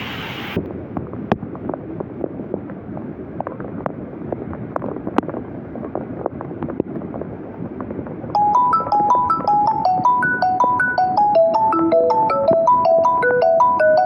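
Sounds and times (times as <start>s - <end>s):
floodwater rushing: 0.0s - 0.6s
loud hiss: 0.0s - 0.6s
wind buffeting microphone: 0.0s - 14.0s.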